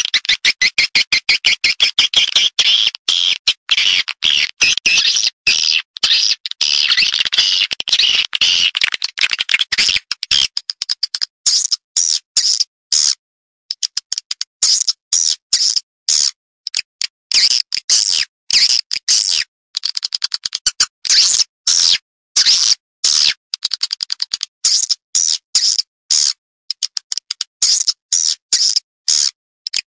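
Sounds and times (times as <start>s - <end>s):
high chirping bird twitters: 0.0s - 14.0s
sharp bird clicks: 0.0s - 29.9s.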